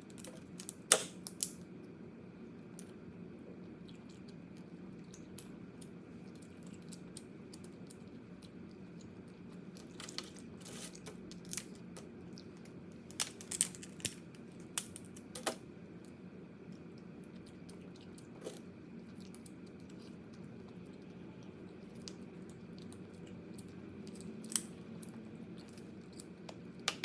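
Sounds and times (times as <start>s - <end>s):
crab shell crunching while eating: 3.7s - 27.0s.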